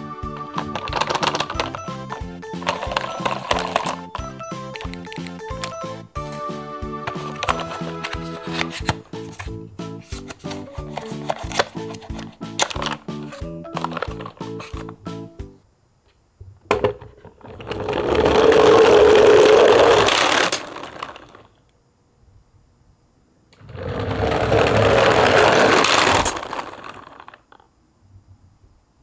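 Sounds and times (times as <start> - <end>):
toy wheels rolling on wooden floor: 0.4 - 5.9, 7.0 - 9.5, 10.2 - 15.0, 16.7 - 21.5, 23.6 - 27.7
steady whirr: 23.5 - 27.3.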